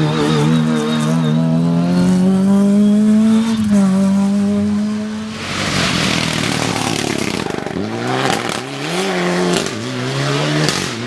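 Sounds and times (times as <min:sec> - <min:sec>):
car engine accelerating: 0:00.0 - 0:11.0
loud rushing noise: 0:05.1 - 0:08.8.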